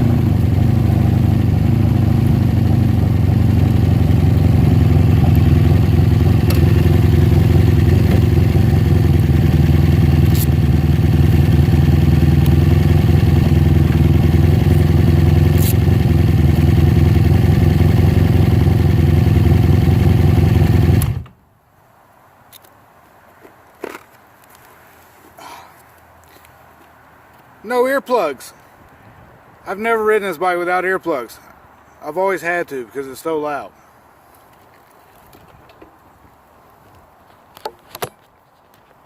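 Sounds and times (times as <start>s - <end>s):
motorcycle engine running: 0.0s - 21.3s.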